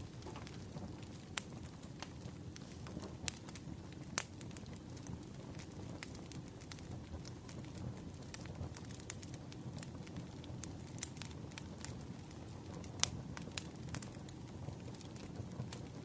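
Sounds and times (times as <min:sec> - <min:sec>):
firewood crackling: 0:00.0 - 0:16.0
low fire rumble: 0:00.0 - 0:16.0
sharp pops of fire: 0:00.0 - 0:16.0.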